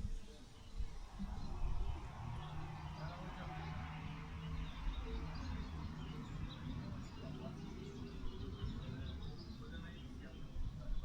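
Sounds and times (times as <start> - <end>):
wind buffeting microphone: 0.0 - 11.0
small birds chirping: 2.4 - 11.0.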